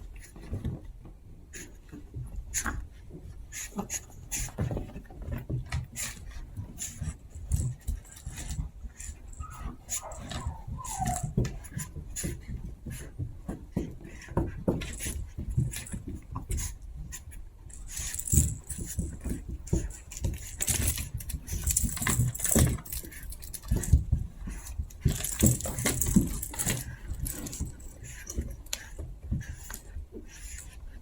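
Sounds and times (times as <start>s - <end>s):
puppies scuffling taps and thumps: 0.0s - 31.0s.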